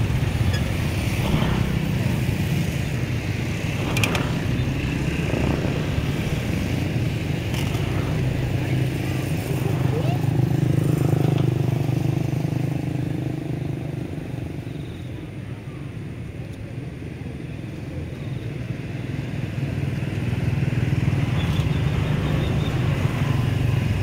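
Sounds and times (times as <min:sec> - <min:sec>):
vehicle engine running: 0:00.0 - 0:14.4.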